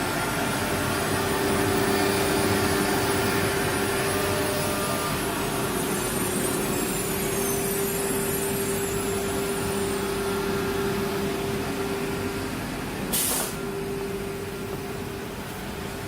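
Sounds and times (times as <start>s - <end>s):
cnc router spindle humming: 0.0s - 16.0s
compressed air hiss: 13.1s - 13.8s.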